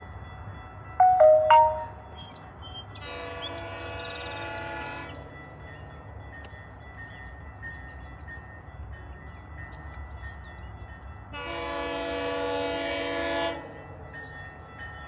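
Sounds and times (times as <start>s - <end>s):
three-note electronic chime: 1.0s - 2.0s
distant train horn: 3.1s - 5.3s, 11.3s - 13.8s.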